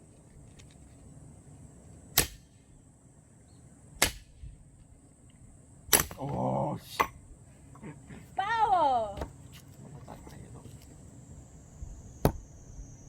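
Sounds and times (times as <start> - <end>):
axe chopping logs: 4.0 - 4.3, 5.9 - 6.4.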